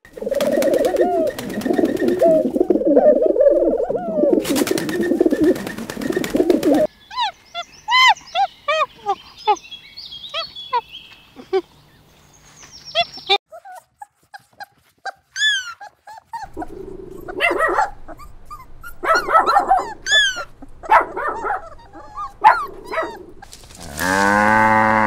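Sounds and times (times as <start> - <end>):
wings flapping: 0.1 - 3.5, 4.3 - 6.9, 23.4 - 24.3
pigeons cooing: 0.1 - 6.9, 16.4 - 25.0.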